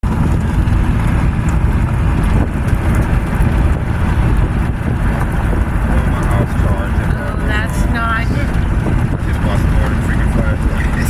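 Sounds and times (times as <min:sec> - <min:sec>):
car road rumble: 0:00.0 - 0:11.0
wind noise: 0:00.0 - 0:11.0.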